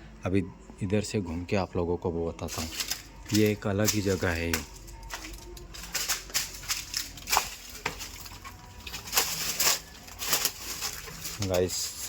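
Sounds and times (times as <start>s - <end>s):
footsteps crunching on dry ground: 2.5s - 12.0s.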